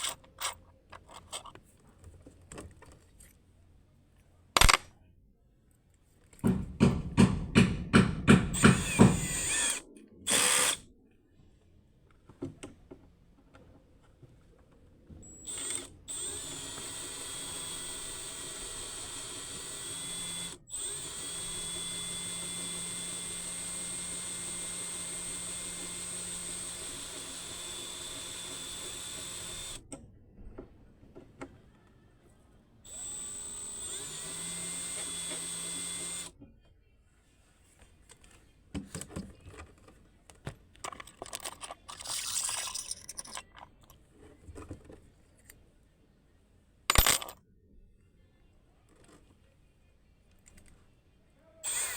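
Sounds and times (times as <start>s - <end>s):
power drill whining: 0.0s - 1.4s, 8.5s - 10.8s, 15.2s - 29.8s, 32.9s - 36.3s, 51.6s - 51.9s
metal clinks and rattles: 40.8s - 44.0s, 46.9s - 47.4s.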